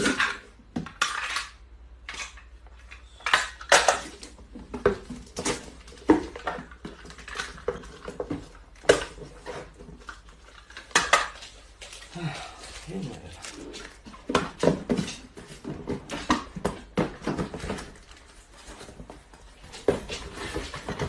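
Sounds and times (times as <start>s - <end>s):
hard objects clattering and clinking: 0.0s - 21.0s.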